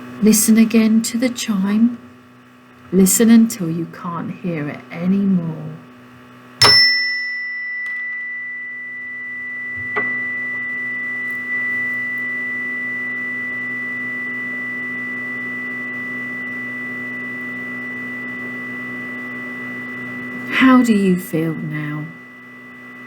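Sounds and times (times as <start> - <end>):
chime ringing: 6.6 - 22.1.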